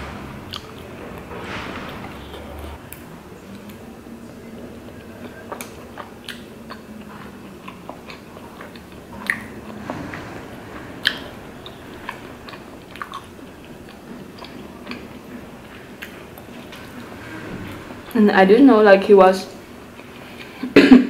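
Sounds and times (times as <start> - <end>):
close-miked chewing: 1.8 - 17.0.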